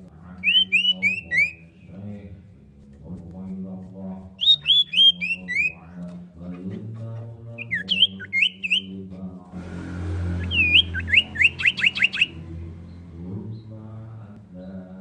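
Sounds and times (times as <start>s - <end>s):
bird whistled calls: 0.4s - 1.8s, 4.4s - 5.8s, 7.6s - 8.9s, 10.4s - 12.5s
low steady hum: 9.4s - 15.0s.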